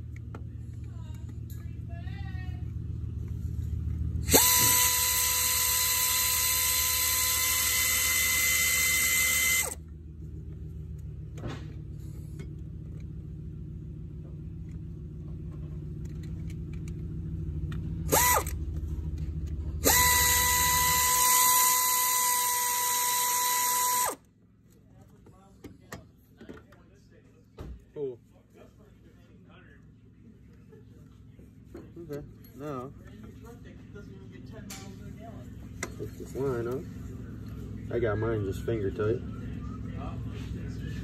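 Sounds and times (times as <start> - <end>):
low steady hum: 0.0 - 41.0
power tool whining: 4.2 - 9.8, 18.0 - 18.7, 19.4 - 24.2.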